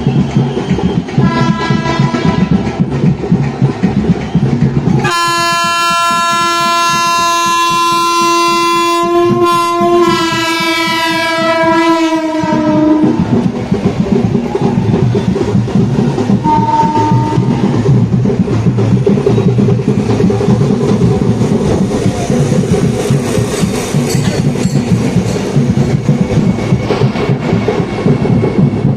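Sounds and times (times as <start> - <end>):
train wheels clattering: 0.0 - 28.9
train horn blasts: 1.2 - 2.7, 5.0 - 13.3, 16.4 - 17.6.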